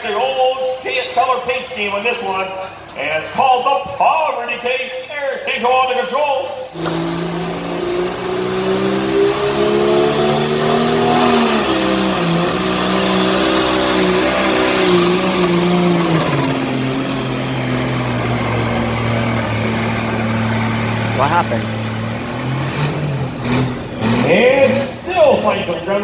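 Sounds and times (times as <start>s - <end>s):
tractor engine working under load: 6.8s - 24.5s.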